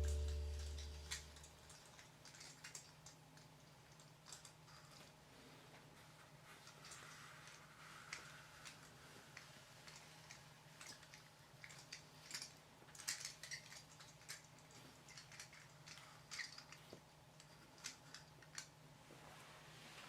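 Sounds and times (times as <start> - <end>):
low steady hum: 0.0 - 1.5.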